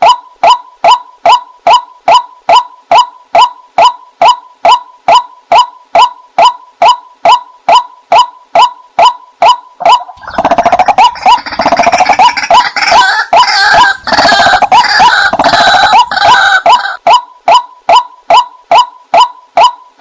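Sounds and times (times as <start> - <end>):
waterhen calls: 8.1 - 19.0.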